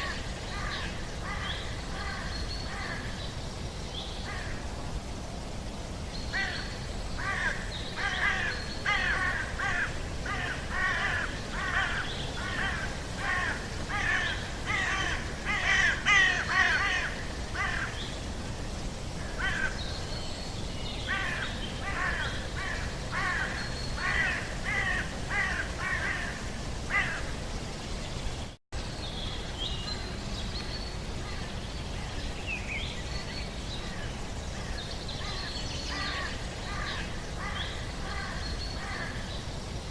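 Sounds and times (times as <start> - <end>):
bird harsh caw-like calls: 0.0 - 3.2, 6.3 - 18.0, 19.2 - 19.9, 21.1 - 27.3, 34.6 - 39.4
low background noise: 0.0 - 39.9.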